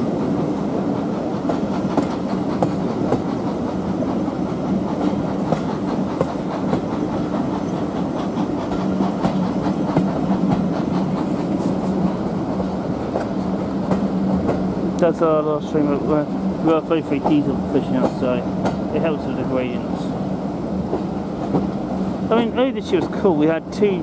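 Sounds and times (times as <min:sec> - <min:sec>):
rumble of wheels on rails: 0:00.0 - 0:24.0
rail-joint clicks: 0:01.0 - 0:20.1, 0:20.8 - 0:23.9.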